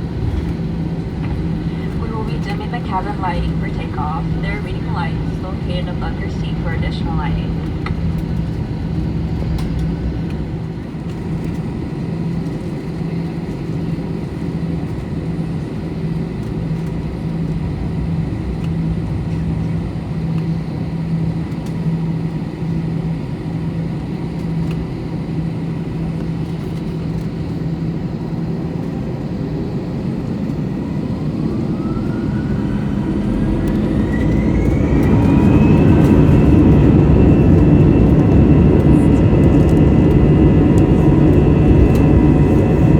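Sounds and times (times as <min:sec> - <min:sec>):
jet engines spooling up: 0:00.0 - 0:12.1, 0:28.4 - 0:42.9
aircraft cabin hum: 0:00.0 - 0:42.9.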